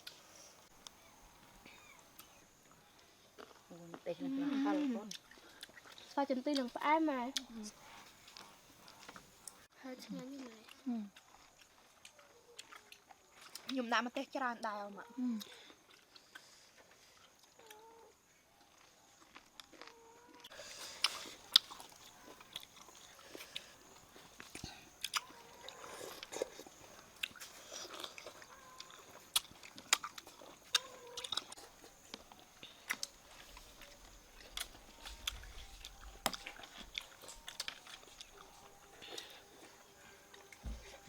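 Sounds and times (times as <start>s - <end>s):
person chewing crunchy food: 5.0s - 6.7s, 10.4s - 13.8s, 15.4s - 17.8s, 18.6s - 41.0s.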